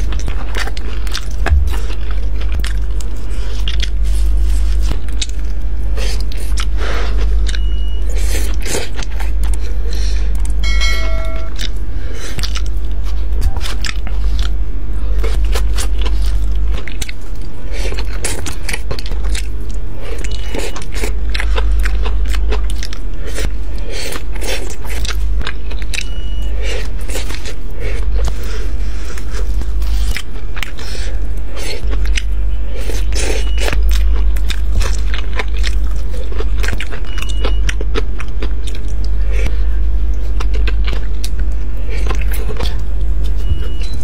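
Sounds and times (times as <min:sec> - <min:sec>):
crunching and chewing: 0:00.0 - 0:10.7, 0:11.6 - 0:44.0
steady low hum: 0:00.0 - 0:36.9
short ringing tone: 0:10.6 - 0:11.7.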